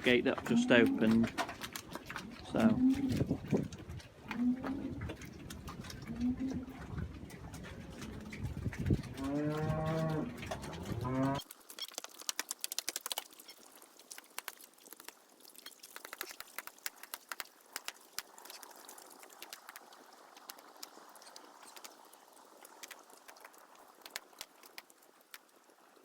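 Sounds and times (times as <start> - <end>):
cow mooing: 0.4 - 1.3, 9.1 - 11.4
sharp clicks and taps: 15.9 - 18.3.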